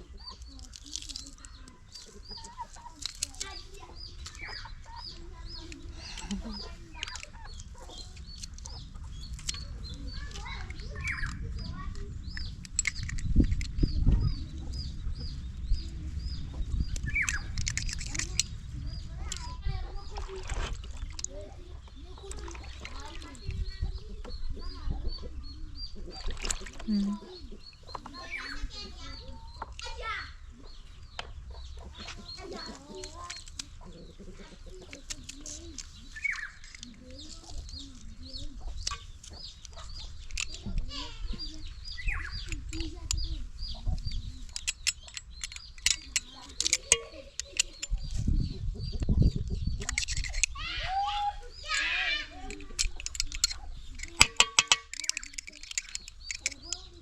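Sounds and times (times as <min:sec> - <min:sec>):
chickens clucking: 0:00.0 - 0:57.0
sharp clicks and knocks: 0:00.3 - 0:14.8, 0:16.9 - 0:18.5, 0:38.7 - 0:50.6, 0:51.6 - 0:57.0.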